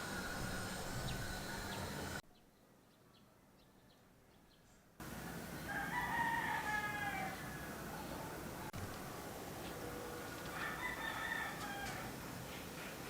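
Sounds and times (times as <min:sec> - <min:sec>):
steady background noise: 0:00.0 - 0:02.2, 0:04.1 - 0:13.0
rooster crowing: 0:05.3 - 0:08.0, 0:10.0 - 0:12.2.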